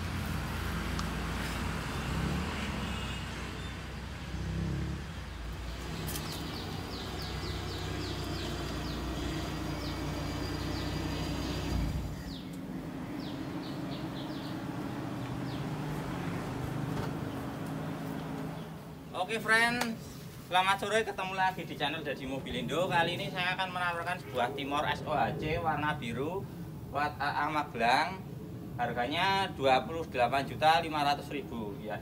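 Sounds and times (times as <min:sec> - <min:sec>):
birds chirping: 0:00.0 - 0:32.0
car engine running low: 0:03.9 - 0:19.1.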